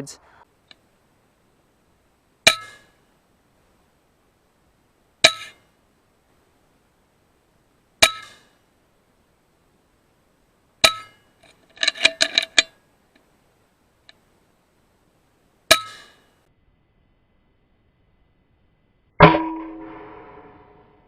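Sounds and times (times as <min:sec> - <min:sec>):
rattle of metallic clicks: 0:11.0 - 0:12.8.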